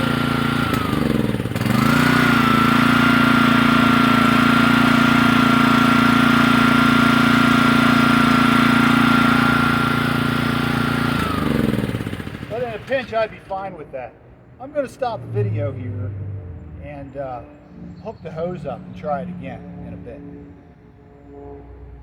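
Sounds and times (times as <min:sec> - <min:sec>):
pressure washer engine running: 0:00.0 - 0:13.5
high whine: 0:14.7 - 0:18.5.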